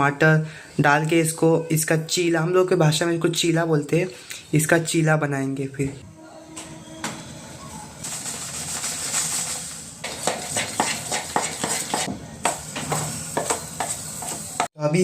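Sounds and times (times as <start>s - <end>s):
batter mixing hiss: 8.0s - 14.8s.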